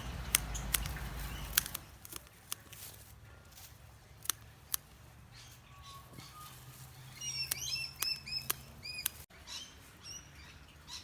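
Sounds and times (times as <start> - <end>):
garden snips cutting stems: 0.2 - 5.0, 6.5 - 9.3.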